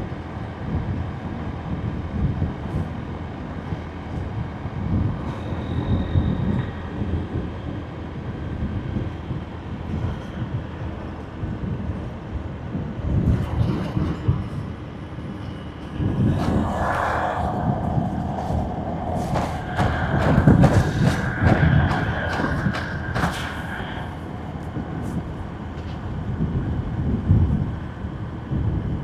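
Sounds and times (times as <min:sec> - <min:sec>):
wind buffeting the microphone: 0:00.0 - 0:29.0
road noise: 0:15.4 - 0:26.3
steady higher hum: 0:15.6 - 0:26.4.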